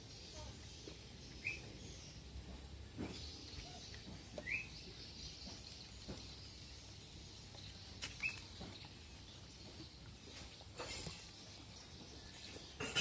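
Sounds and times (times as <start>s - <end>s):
high bird chirps: 0.1s - 2.2s, 3.1s - 6.6s, 7.7s - 9.8s.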